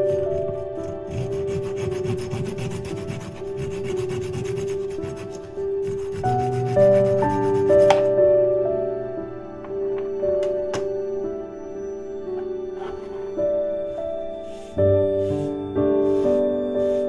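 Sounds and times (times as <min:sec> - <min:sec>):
soft music with held notes: 0:00.0 - 0:17.0
hand saw cutting wood: 0:00.3 - 0:08.1.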